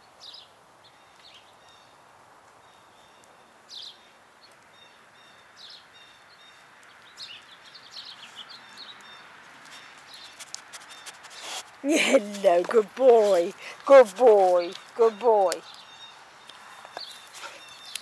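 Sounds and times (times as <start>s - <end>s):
low steady hiss: 0.0s - 10.2s
birds chirping: 2.6s - 18.0s.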